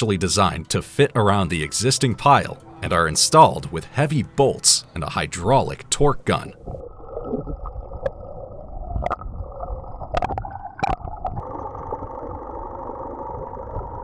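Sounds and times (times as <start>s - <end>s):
underwater mechanical hum: 11.3s - 14.0s.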